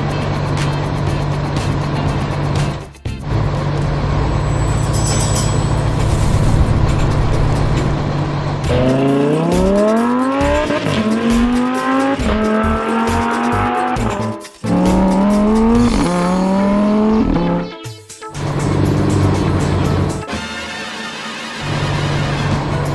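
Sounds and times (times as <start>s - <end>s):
race car engine revving: 6.0s - 17.7s, 18.4s - 20.2s.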